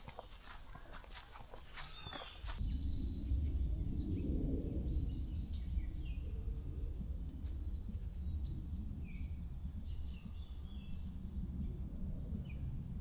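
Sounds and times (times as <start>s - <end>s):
footsteps crunching on a trail: 0.0s - 2.6s
small birds chirping: 0.0s - 2.8s
steady low rumble: 0.0s - 13.0s.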